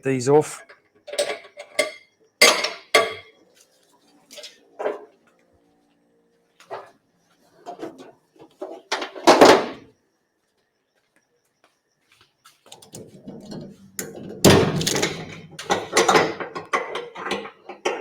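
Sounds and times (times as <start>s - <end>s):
metal buckles clanking: 12.8s - 18.0s.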